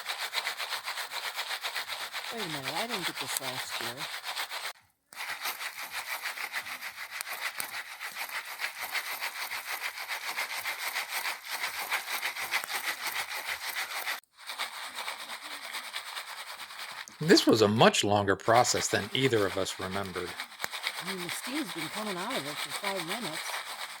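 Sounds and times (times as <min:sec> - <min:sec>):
foil pan scraping: 0:00.0 - 0:04.7, 0:05.3 - 0:17.6, 0:18.7 - 0:24.0
kernels sliding in pan: 0:02.1 - 0:17.3.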